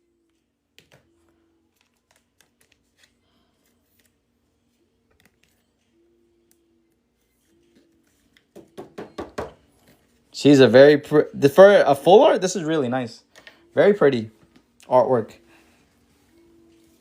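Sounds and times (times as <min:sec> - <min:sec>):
trading cards clicking and sliding: 0:00.3 - 0:08.5.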